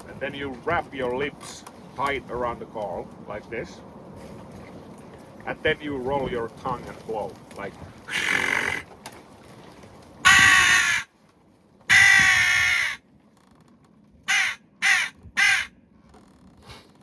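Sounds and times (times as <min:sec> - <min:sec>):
wooden crow call caws: 0:08.1 - 0:09.0, 0:10.2 - 0:11.1, 0:11.9 - 0:13.0, 0:14.2 - 0:15.8.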